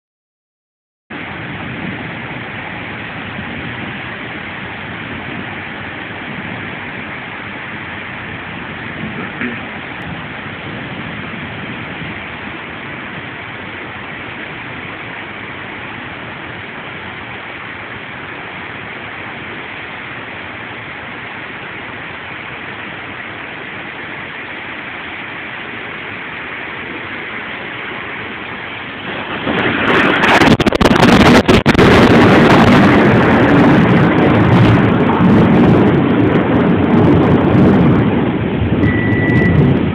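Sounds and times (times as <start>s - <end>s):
harsh distorted rushing noise: 1.1s - 39.9s
rain hissing: 1.1s - 39.9s.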